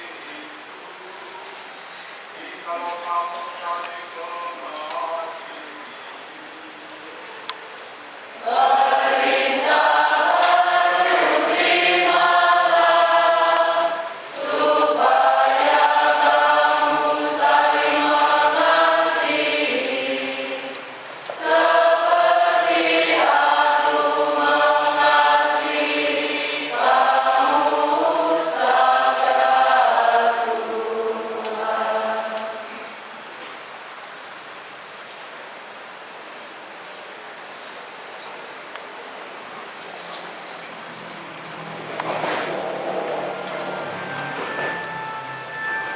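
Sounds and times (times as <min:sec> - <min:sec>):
choir singing a hymn: 0:08.4 - 0:33.1, 0:42.0 - 0:45.9.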